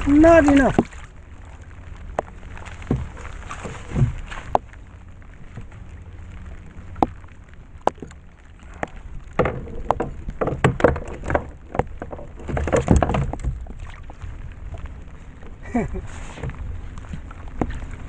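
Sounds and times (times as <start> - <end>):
rain falling on sea: 0.0 - 18.0
water splashes: 0.0 - 18.0
clattering knocks: 9.4 - 13.6
sharp knocks: 9.4 - 13.6.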